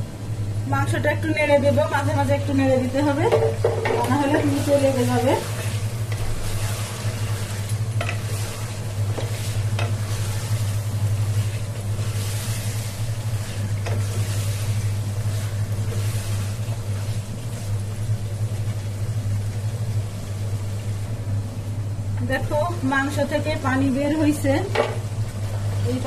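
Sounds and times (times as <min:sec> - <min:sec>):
steady low hum: 0:00.0 - 0:26.0
chicken sizzling in oil: 0:01.8 - 0:21.8
wooden spatula stirring: 0:03.1 - 0:19.0.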